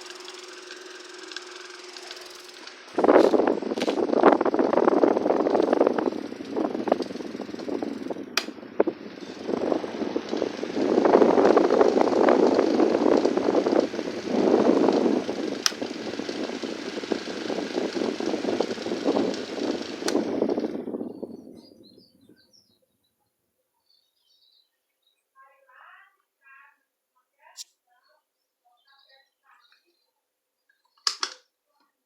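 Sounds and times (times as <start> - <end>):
fan sharp clicks: 0.0 - 21.1, 31.0 - 31.4
electric fan air rushing: 0.0 - 22.0.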